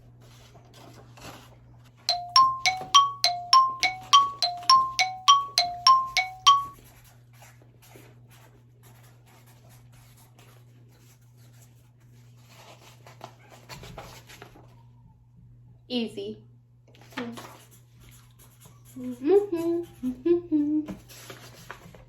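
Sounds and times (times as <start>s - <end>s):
electronic two-note chime: 2.1s - 6.8s.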